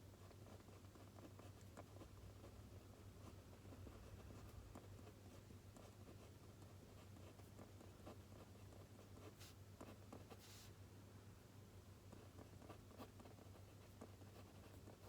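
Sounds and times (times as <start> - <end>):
pen writing on paper: 0.2 - 2.5, 12.2 - 15.0.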